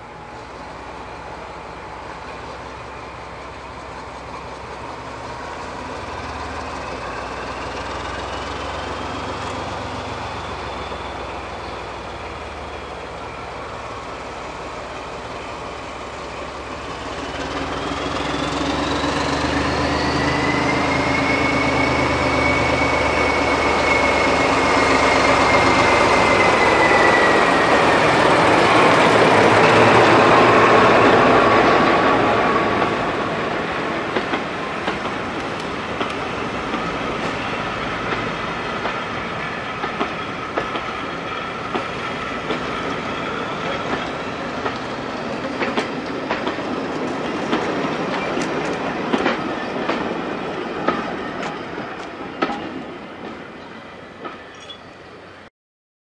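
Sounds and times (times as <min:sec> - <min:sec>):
diesel locomotive engine: 0:00.0 - 0:55.5
wheels clicking over rail joints: 0:43.6 - 0:50.2.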